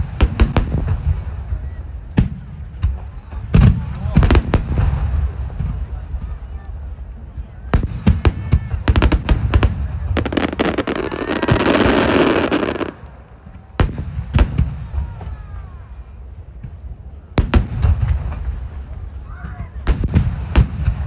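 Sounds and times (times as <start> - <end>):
firework shells booming: 0.0 - 1.4, 2.2 - 5.9, 7.8 - 13.1, 17.4 - 18.8, 19.9 - 21.0.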